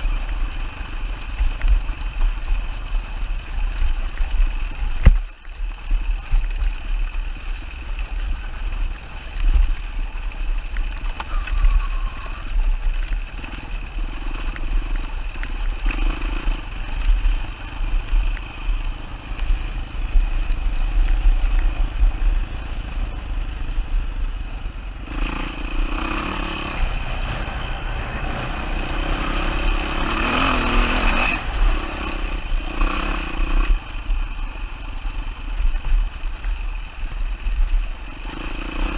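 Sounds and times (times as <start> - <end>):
dirt bike engine revving: 13.2 - 20.4, 25.0 - 34.3, 38.1 - 38.9.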